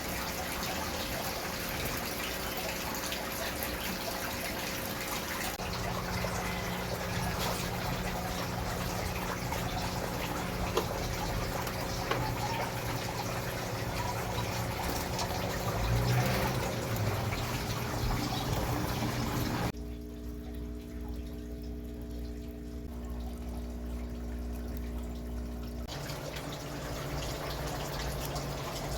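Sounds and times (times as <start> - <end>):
water running and splashing: 0.0 - 28.9
steady hum: 2.0 - 28.9.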